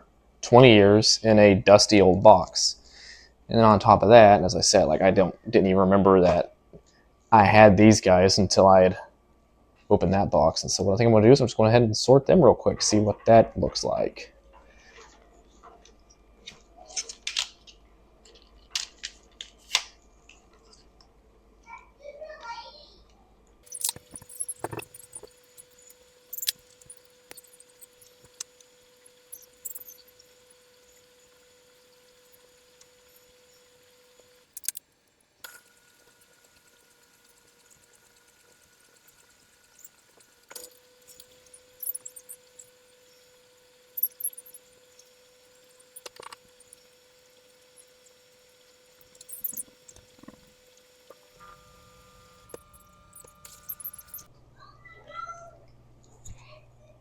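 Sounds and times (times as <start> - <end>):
faint steady hum: 23.0 - 57.0
miniatures clicking and clattering: 23.7 - 28.6, 29.3 - 30.1, 34.5 - 34.9, 35.5 - 42.7, 43.9 - 47.0, 48.9 - 50.5, 52.4 - 54.3.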